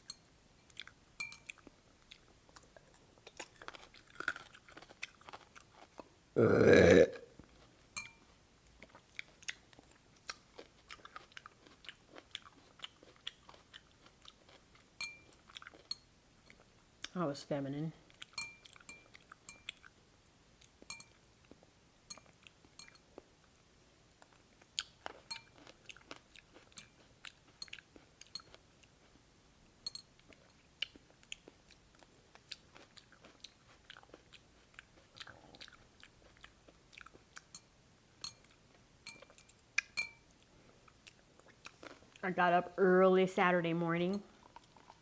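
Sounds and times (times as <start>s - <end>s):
person crunching and chewing: 0.7s - 7.8s, 8.8s - 15.9s, 18.1s - 20.0s, 24.2s - 29.2s, 30.2s - 37.5s, 40.9s - 42.3s, 44.2s - 45.0s.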